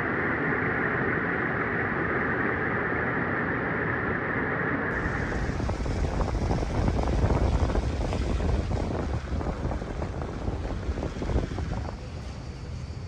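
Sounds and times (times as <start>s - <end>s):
steady rushing noise: 0.0s - 13.0s
wind buffeting microphone: 4.9s - 13.0s.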